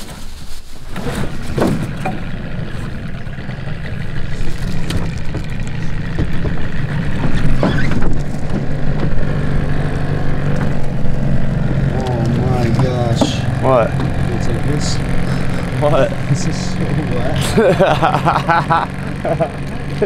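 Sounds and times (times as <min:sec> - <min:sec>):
boat motor running: 0:00.9 - 0:20.0.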